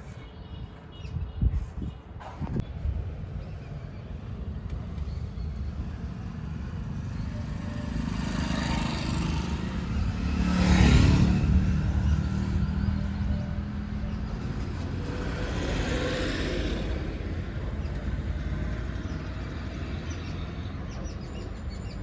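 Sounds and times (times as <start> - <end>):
diesel engine running: 3.4 - 18.8.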